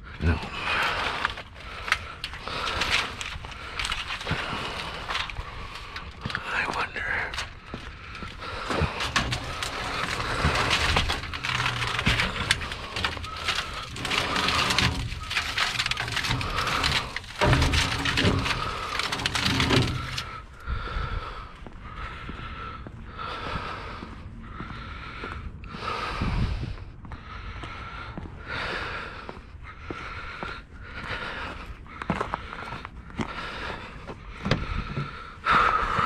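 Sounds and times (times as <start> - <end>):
scrap metal clattering and scraping: 0.2 - 20.6.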